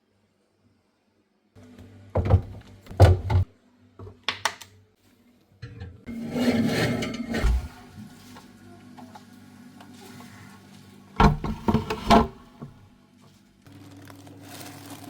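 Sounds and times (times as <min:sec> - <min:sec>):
rough scraping: 0:06.1 - 0:08.0, 0:11.2 - 0:12.8.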